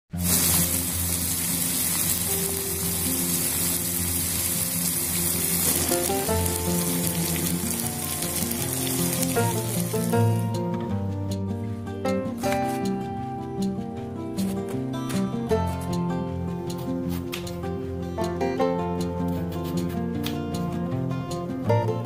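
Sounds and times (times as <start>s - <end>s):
curry sizzling in a pan: 0.1s - 10.8s
background music: 0.1s - 22.0s.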